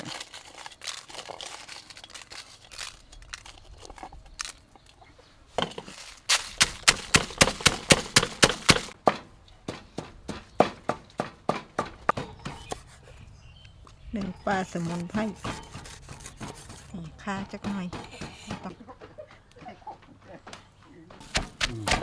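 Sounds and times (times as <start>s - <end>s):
rustling: 0.0s - 9.0s, 14.5s - 17.0s, 21.2s - 22.0s
pestle pounding in a mortar: 6.3s - 9.0s, 14.9s - 18.6s, 21.2s - 22.0s.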